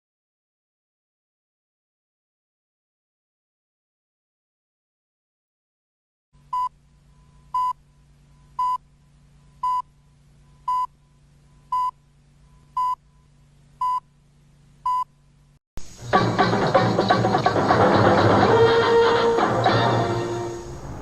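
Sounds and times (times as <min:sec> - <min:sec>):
steady low hum: 0:06.4 - 0:21.0
music: 0:15.8 - 0:21.0.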